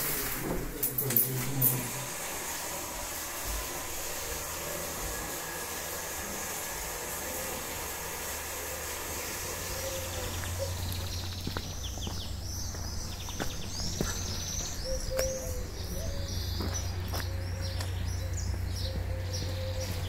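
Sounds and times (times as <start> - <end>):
small birds chirping: 8.8 - 20.0.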